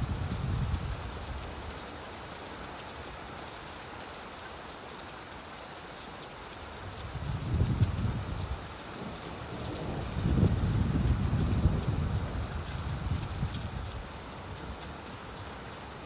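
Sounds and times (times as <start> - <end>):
steady rainfall: 0.0 - 16.0
thunder rumbling: 9.6 - 13.6.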